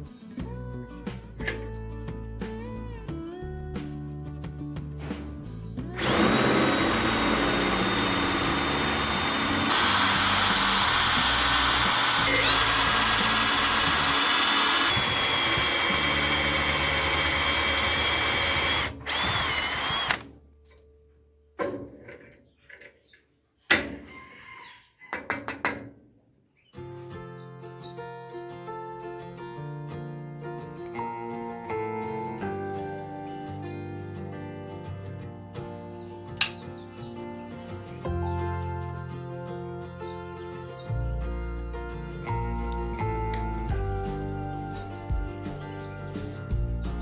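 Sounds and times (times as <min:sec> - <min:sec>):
power tool whining on steel: 0:06.0 - 0:20.3.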